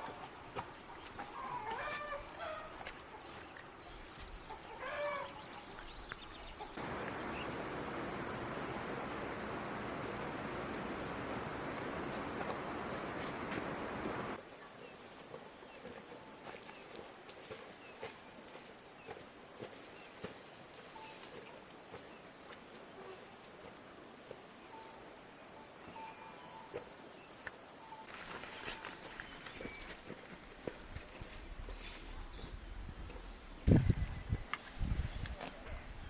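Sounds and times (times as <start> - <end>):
faint chirps: 6.8 - 14.4.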